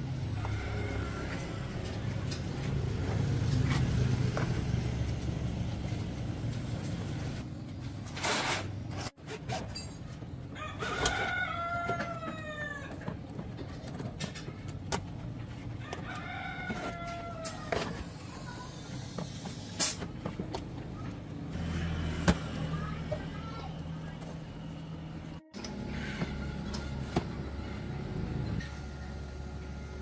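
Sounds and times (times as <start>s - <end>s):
rooster crowing: 0.3s - 1.9s, 10.6s - 13.0s, 15.8s - 17.8s.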